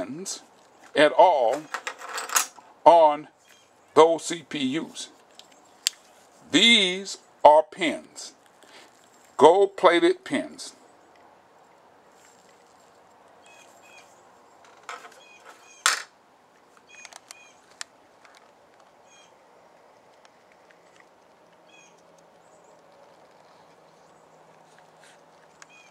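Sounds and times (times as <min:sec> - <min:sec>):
small bird chirping: 0:03.4 - 0:03.8, 0:13.4 - 0:14.3, 0:15.1 - 0:15.9, 0:16.8 - 0:17.7, 0:21.6 - 0:24.4, 0:25.5 - 0:25.9.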